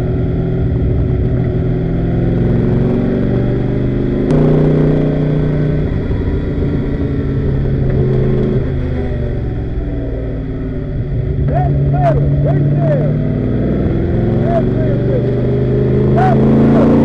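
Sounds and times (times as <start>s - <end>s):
race car engine accelerating: 0.6s - 17.0s.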